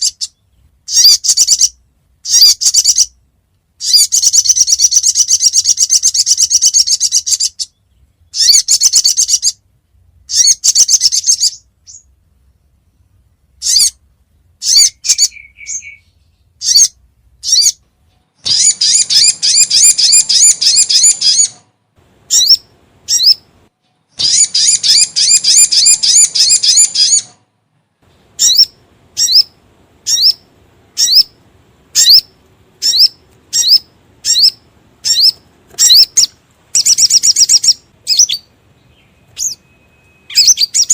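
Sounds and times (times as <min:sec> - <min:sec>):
bird chattering fast: 0:00.0 - 0:03.1, 0:03.8 - 0:07.8, 0:08.4 - 0:09.6, 0:10.3 - 0:11.6, 0:16.6 - 0:17.8, 0:18.5 - 0:21.6, 0:22.3 - 0:23.4, 0:24.2 - 0:27.3, 0:28.4 - 0:38.5
bird calling with sharp notes: 0:00.0 - 0:03.2, 0:03.8 - 0:09.6, 0:10.3 - 0:12.1, 0:13.6 - 0:14.0, 0:14.6 - 0:23.5, 0:24.1 - 0:27.4, 0:28.3 - 0:40.9
upward-sweeping bird chirps: 0:00.0 - 0:03.2, 0:03.8 - 0:09.6, 0:10.3 - 0:12.1, 0:13.6 - 0:17.8, 0:18.4 - 0:21.7, 0:22.3 - 0:23.5, 0:24.1 - 0:27.4, 0:28.4 - 0:40.9.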